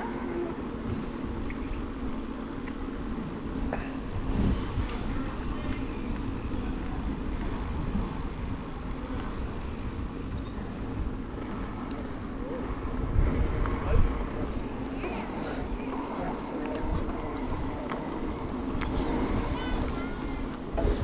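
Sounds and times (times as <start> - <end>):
bicycle tyres on path: 0.0 - 21.0
wind buffeting microphone: 0.0 - 21.0.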